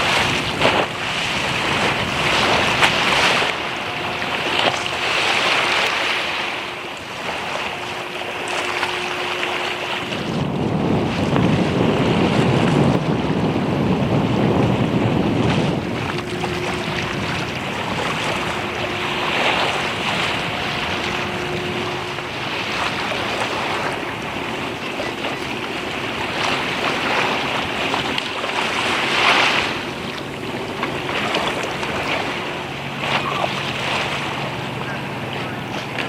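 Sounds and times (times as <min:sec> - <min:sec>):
sea waves washing against quay: 0:00.0 - 0:36.0
wind buffeting microphone: 0:00.0 - 0:36.0.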